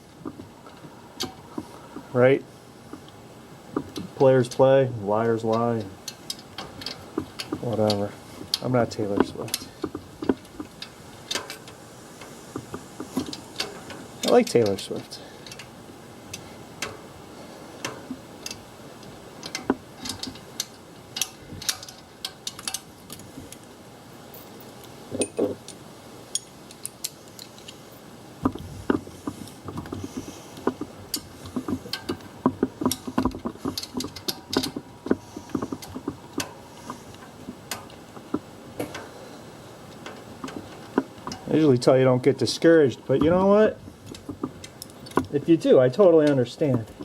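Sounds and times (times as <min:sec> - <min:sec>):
small metal clinks: 0:17.8 - 0:39.2.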